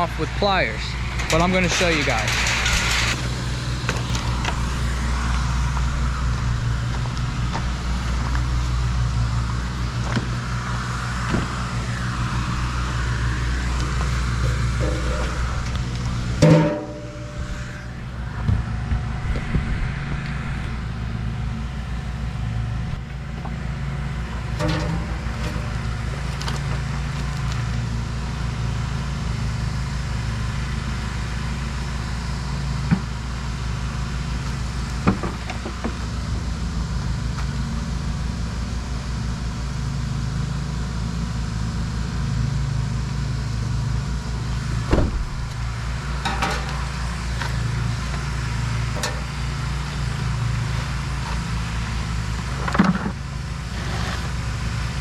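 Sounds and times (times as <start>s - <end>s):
low machine hum: 0.0s - 55.0s
sharp clicks and knocks: 44.9s - 48.2s, 48.9s - 49.6s.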